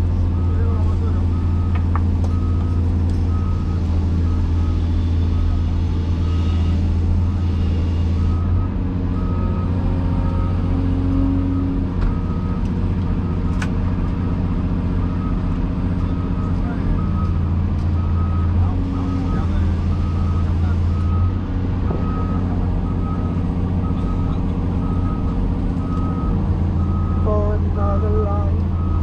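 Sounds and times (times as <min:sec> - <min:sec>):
heavy diesel engine running: 0:00.0 - 0:29.0
backup alarm beeping: 0:22.0 - 0:29.0.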